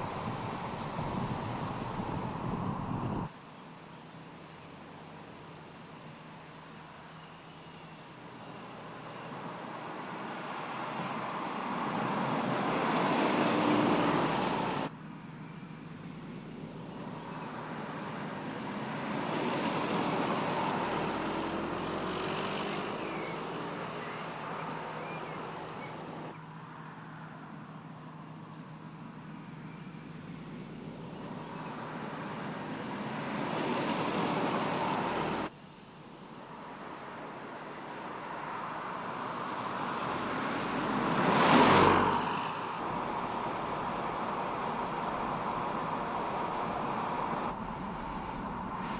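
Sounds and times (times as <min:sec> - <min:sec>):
road noise: 0:00.0 - 0:48.9
car engine: 0:16.6 - 0:26.3.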